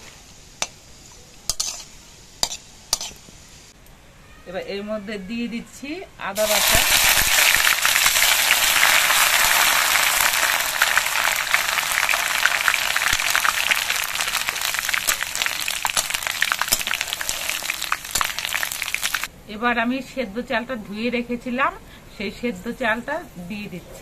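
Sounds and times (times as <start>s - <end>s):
paste sizzling in hot oil: 0.0s - 3.8s, 6.4s - 19.3s.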